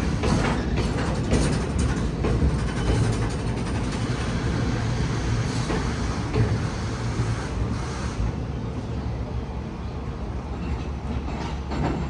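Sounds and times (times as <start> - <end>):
train rumbling on tracks: 0.0 - 12.0
clicks and knocks of wheels: 0.2 - 4.2.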